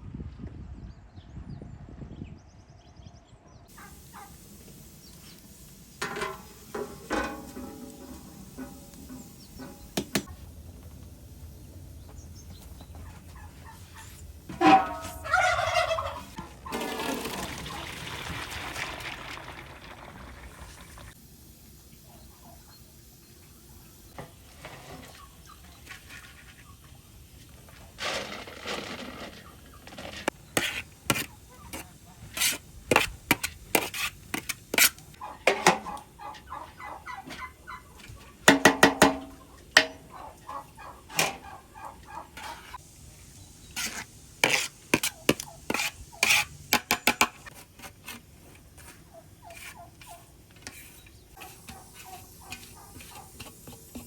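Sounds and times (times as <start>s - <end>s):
turkeys gobbling: 3.7s - 4.4s, 13.0s - 17.9s, 35.1s - 38.5s, 39.3s - 42.8s.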